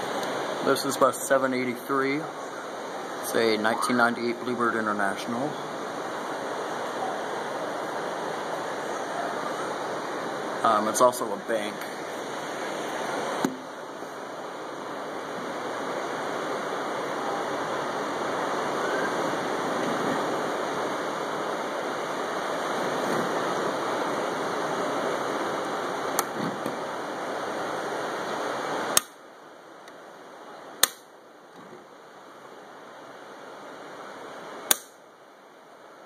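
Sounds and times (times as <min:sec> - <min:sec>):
steady rushing noise: 0:00.0 - 0:36.0
sharp clicks: 0:34.7 - 0:35.0.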